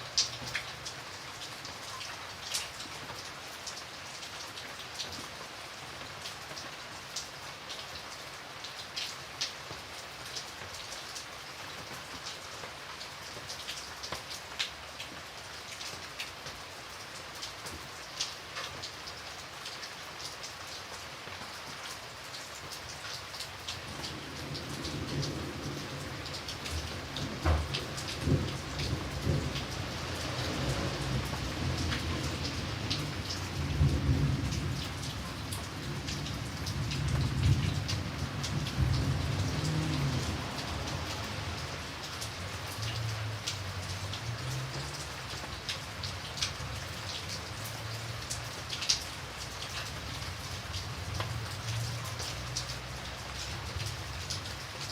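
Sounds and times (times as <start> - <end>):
raindrops ticking on a surface: 0.0 - 54.9
steady rain: 0.0 - 54.9
rolling thunder: 35.8 - 41.1.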